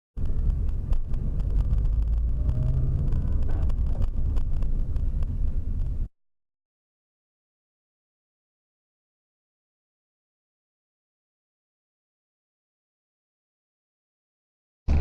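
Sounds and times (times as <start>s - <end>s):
car engine rumble and road noise: 0.2s - 6.1s.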